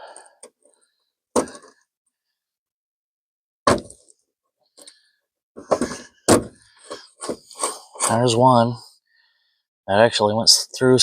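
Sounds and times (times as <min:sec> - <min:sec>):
sharp knocks: 0:03.7 - 0:04.0, 0:05.6 - 0:06.6.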